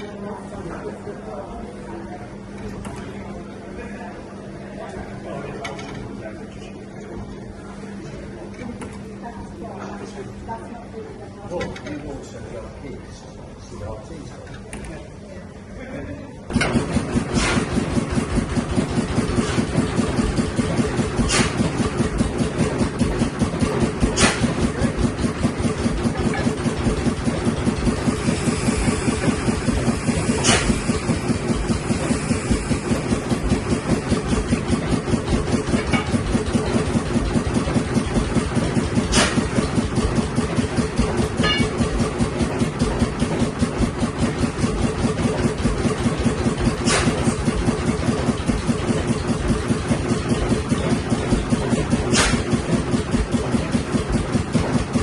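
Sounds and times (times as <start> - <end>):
engine running steadily: 16.5 - 55.0.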